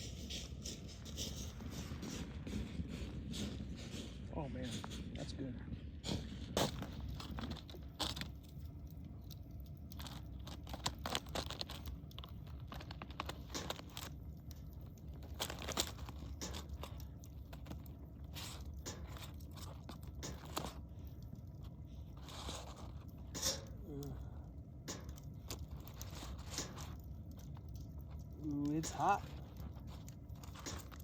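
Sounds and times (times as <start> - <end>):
low steady rumble: 0.0 - 31.0
person chewing crispy food: 6.7 - 31.0.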